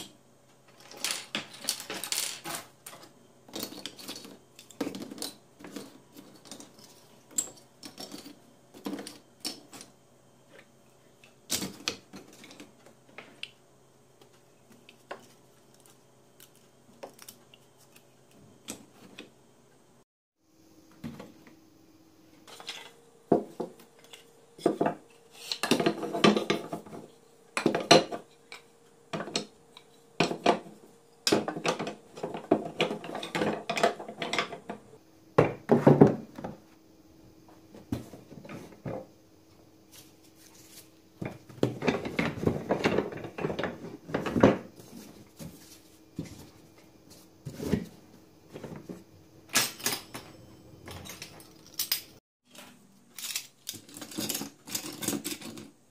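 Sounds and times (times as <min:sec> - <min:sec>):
faint steady hum: 0:00.0 - 0:55.9.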